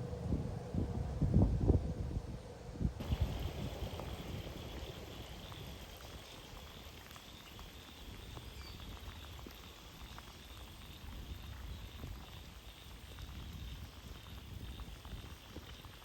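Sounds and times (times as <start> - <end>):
low rumble: 0.0 - 6.5
rain drops pattering: 3.0 - 16.0.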